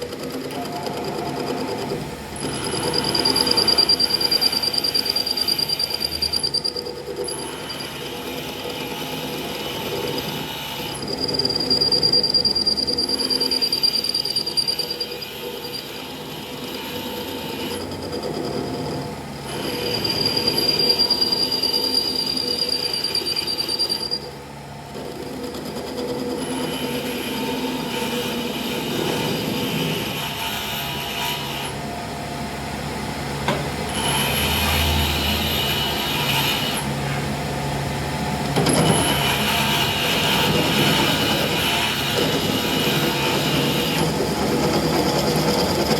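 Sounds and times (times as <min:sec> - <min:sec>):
metalworking machine running: 0:00.0 - 0:45.9
high-pitched metal squeal: 0:00.6 - 0:24.4, 0:33.9 - 0:37.2, 0:38.7 - 0:45.9.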